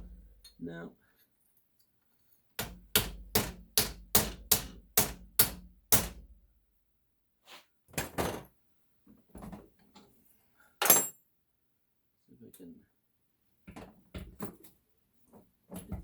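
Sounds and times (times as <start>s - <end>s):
hammer striking metal valve: 2.6s - 6.2s.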